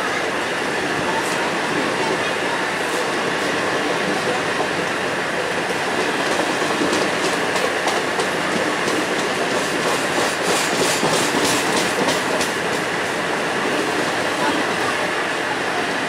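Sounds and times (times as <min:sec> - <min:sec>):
train wheels clattering over rail joints: 0:05.6 - 0:13.0.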